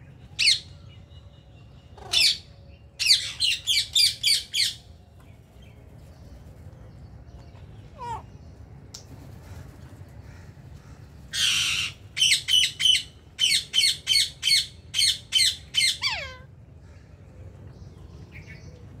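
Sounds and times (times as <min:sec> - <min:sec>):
parakeet squawking: 0:02.0 - 0:02.5, 0:07.9 - 0:08.3, 0:11.4 - 0:16.5.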